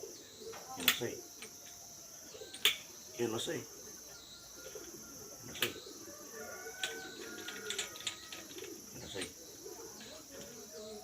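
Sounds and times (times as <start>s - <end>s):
pigeons cooing: 0.0s - 1.0s, 3.6s - 11.0s.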